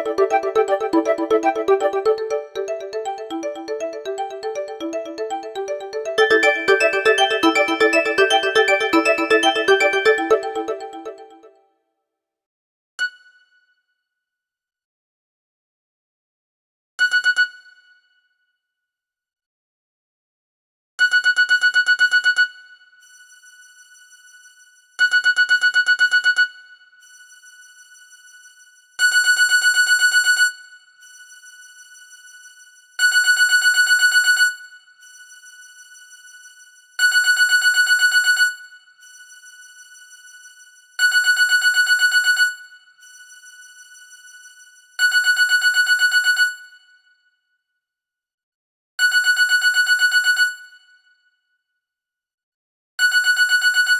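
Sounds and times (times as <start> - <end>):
phone ringtone trilling: 0.0 - 11.4.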